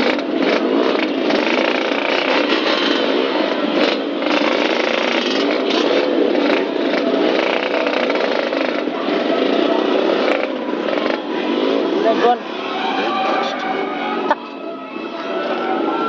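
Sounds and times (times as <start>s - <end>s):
old vehicle engine revving: 0.0s - 12.3s.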